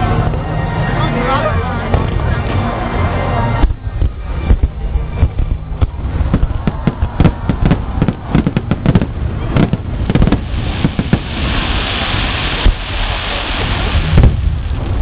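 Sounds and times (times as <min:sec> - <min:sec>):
firework crackling hiss: 0:03.6 - 0:15.0.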